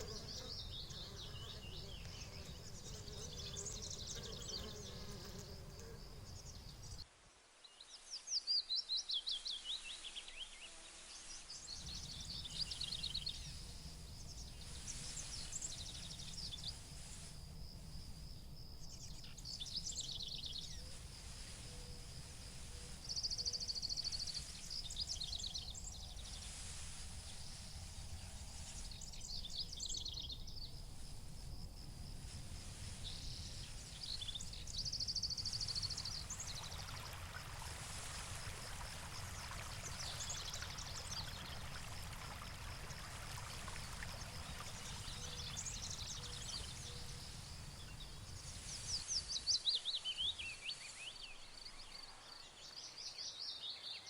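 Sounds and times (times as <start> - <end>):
high insect buzz: 0.0 - 7.0
songbirds trilling: 0.0 - 7.0, 11.6 - 53.4.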